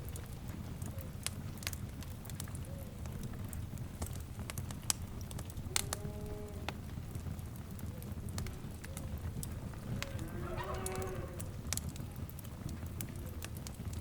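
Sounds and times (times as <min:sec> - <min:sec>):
low rumble of flames: 0:00.0 - 0:14.0
sharp pops and snaps: 0:00.0 - 0:14.0
wood fire crackling: 0:00.0 - 0:14.0
faint pitched calls: 0:10.0 - 0:11.5.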